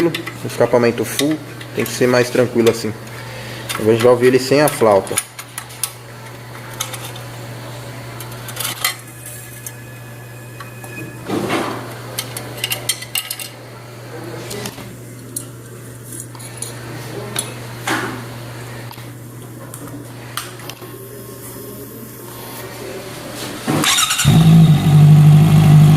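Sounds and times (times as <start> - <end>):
steady low hum: 24.2 - 25.9.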